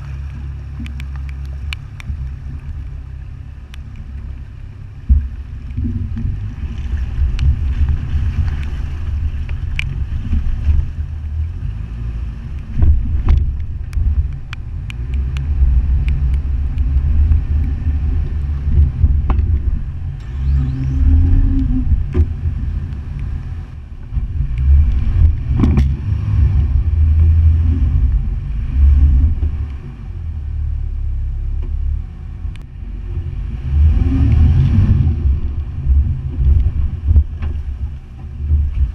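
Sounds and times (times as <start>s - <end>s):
vehicle driving through water: 0.0s - 38.9s
sharp knocks and clicks: 12.5s - 20.0s, 24.1s - 26.1s.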